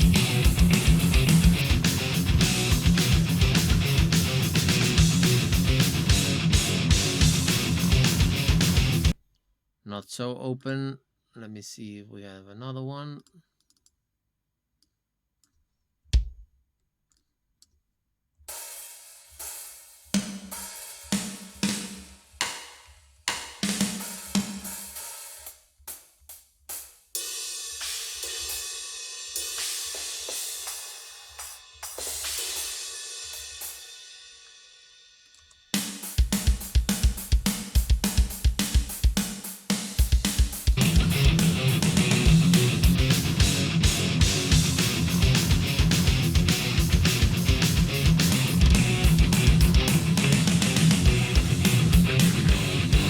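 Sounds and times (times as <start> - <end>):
distorted electric guitar: 0.0 - 9.2, 40.8 - 53.0
drum groove with open hi-hat: 0.0 - 9.2, 18.5 - 53.0.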